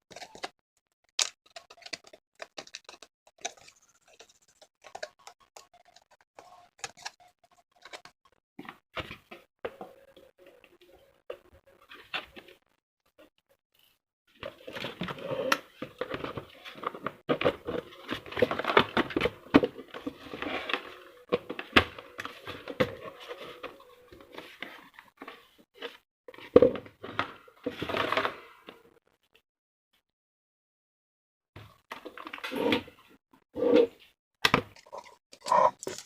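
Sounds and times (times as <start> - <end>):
plastic parts rustling and clicking: 0.1 - 9.2, 14.4 - 26.0, 34.6 - 36.0.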